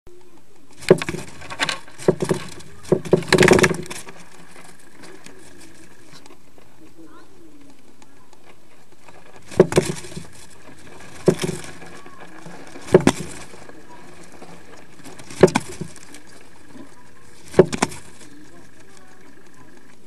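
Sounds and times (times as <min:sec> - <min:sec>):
faint steady hum: 0:00.1 - 0:20.0
knocks inside nest box: 0:00.8 - 0:04.2, 0:09.4 - 0:16.8, 0:17.4 - 0:18.3.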